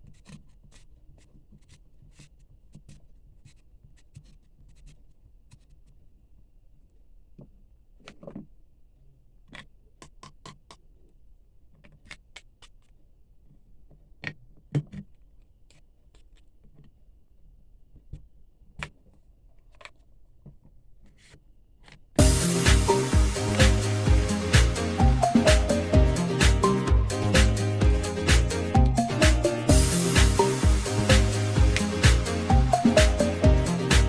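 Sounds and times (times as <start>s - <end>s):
loud music: 22.2s - 34.0s.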